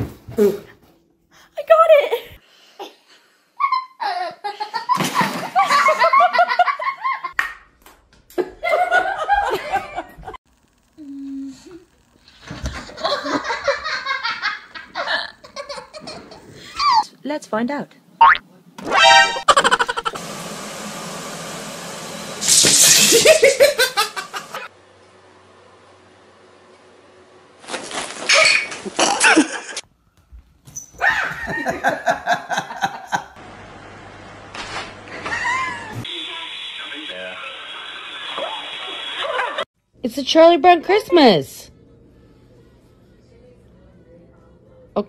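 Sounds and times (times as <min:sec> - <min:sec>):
people laughing: 0:03.6 - 0:07.3, 0:08.4 - 0:10.4, 0:12.8 - 0:16.9, 0:19.5 - 0:20.2, 0:31.2 - 0:33.4, 0:38.9 - 0:39.7
person laughing: 0:19.4 - 0:20.2, 0:23.0 - 0:24.6, 0:28.8 - 0:29.8, 0:31.2 - 0:33.4.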